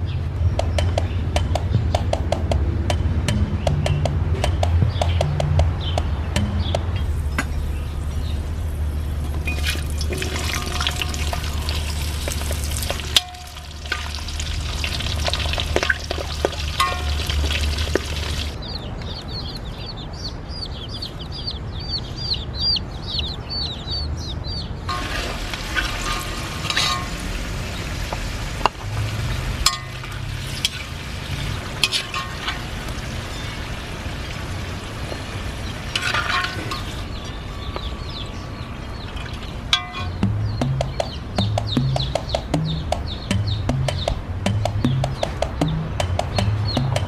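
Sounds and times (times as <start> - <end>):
potatoes sizzling in oil: 9.5 - 18.6, 24.9 - 37.0
chicks peeping: 17.4 - 24.9, 36.8 - 47.0.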